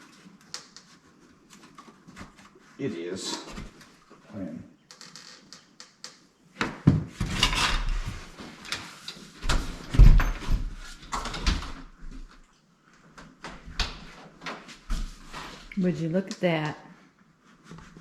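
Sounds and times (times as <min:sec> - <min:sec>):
door knocks clunks and rattles: 0:09.5 - 0:11.8.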